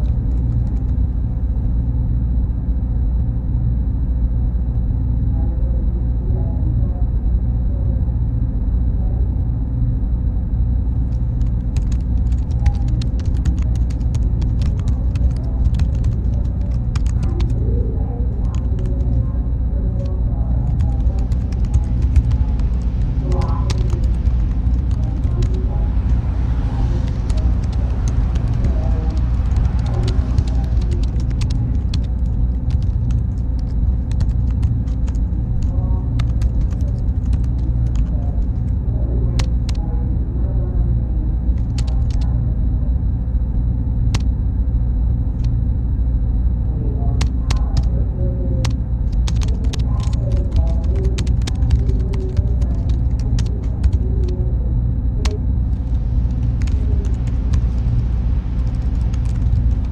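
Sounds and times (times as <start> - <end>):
faint high whine: 0.0 - 59.9
low machine hum: 0.0 - 59.9
keyboard typing clicks: 11.2 - 17.8, 20.0 - 25.7, 27.0 - 38.1, 41.6 - 42.2, 47.2 - 47.9, 49.1 - 54.3, 56.6 - 57.6, 58.6 - 59.9.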